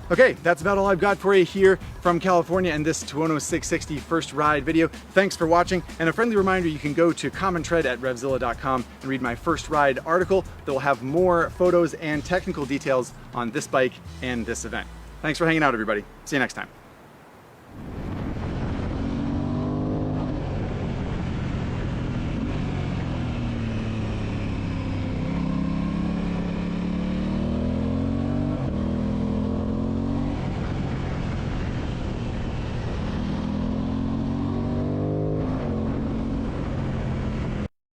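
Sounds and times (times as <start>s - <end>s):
motorcycle engine accelerating hard: 17.8s - 37.7s.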